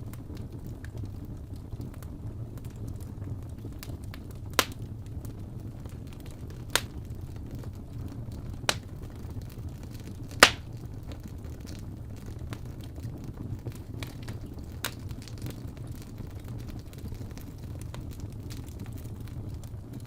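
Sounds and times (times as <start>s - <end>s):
wood fire rumbling and crackling: 0.0s - 20.0s
fire popping sharply: 2.7s - 5.2s, 5.8s - 20.0s.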